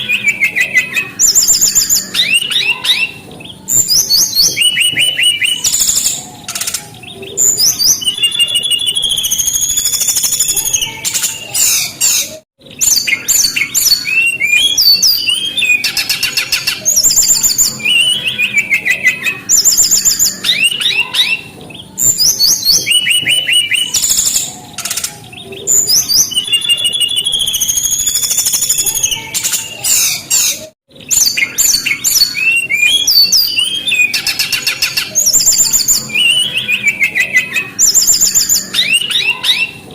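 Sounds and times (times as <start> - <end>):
bird song with whistles and trills: 0.0 - 39.9.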